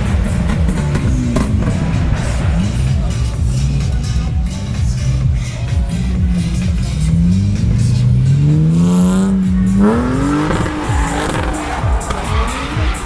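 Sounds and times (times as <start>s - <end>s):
car engine revving up: 0.0s - 13.0s.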